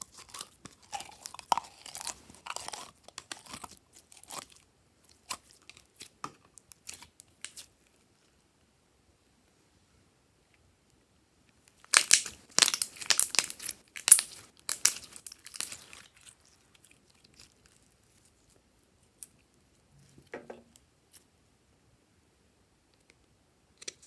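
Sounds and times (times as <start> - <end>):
plastic packaging crinkling: 11.8 - 16.6.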